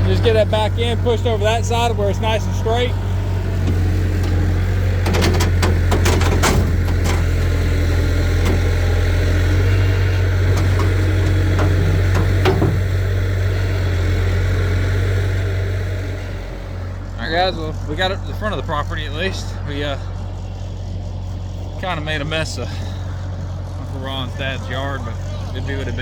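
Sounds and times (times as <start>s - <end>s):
vehicle engine humming: 0.0s - 26.0s
metallic clanks and rattles: 3.6s - 13.1s.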